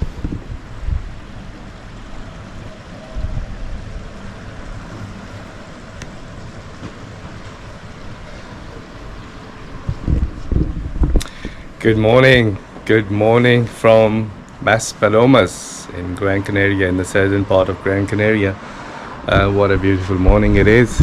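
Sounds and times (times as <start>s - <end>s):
wind buffeting microphone: 0.0s - 1.5s, 3.1s - 6.8s, 9.0s - 12.5s, 19.3s - 21.0s
low outdoor rumble: 0.0s - 21.0s.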